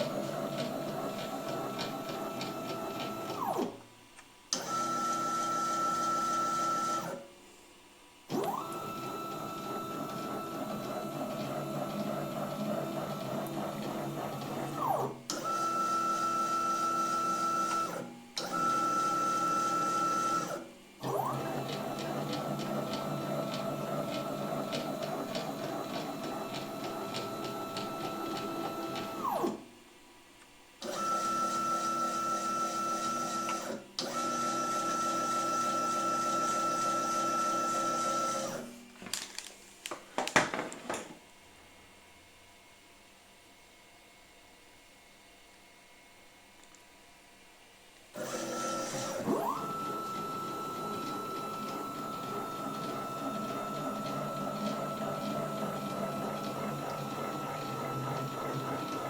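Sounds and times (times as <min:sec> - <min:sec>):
lathe motors whining: 0:48.2 - 0:59.0.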